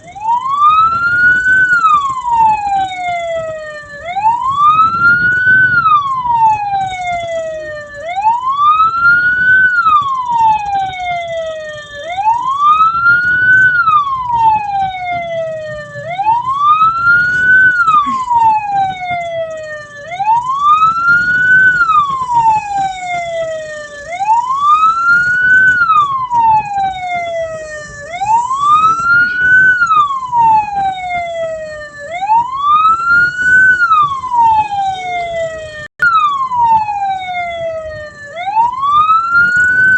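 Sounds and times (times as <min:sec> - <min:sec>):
electronic siren wailing: 0:00.0 - 0:39.9.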